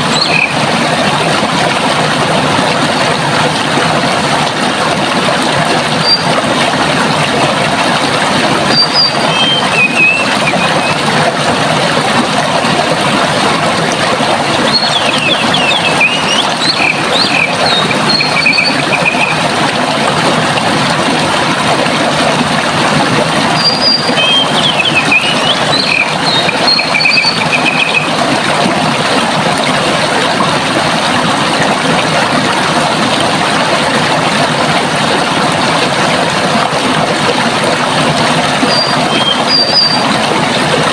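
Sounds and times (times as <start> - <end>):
running water: 0.0 - 40.9
songbird singing: 0.1 - 0.6, 8.8 - 10.9, 14.7 - 19.3, 23.6 - 28.1, 38.7 - 40.0.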